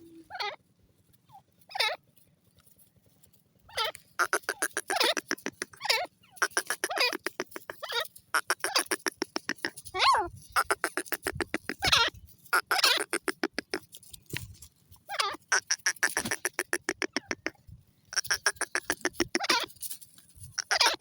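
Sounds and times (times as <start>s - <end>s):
bird calling: 3.7s - 14.0s, 15.1s - 21.0s.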